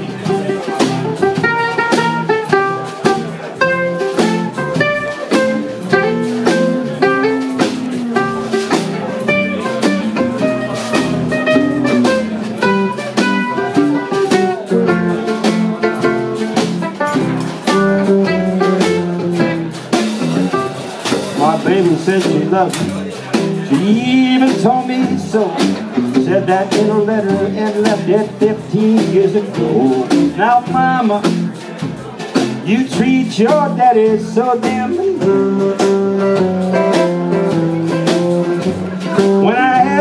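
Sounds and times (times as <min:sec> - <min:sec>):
strummed strings: 0:00.0 - 0:40.0.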